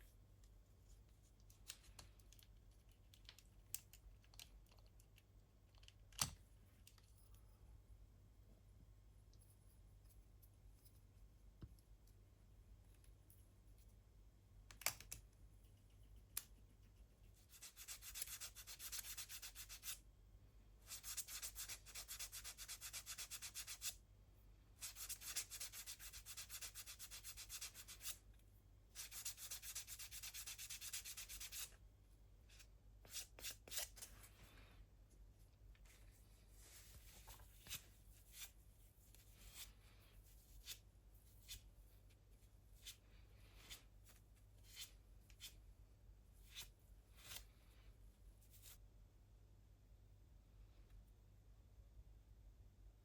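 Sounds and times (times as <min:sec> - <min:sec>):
light clicks of handled parts: 0:01.4 - 0:07.4.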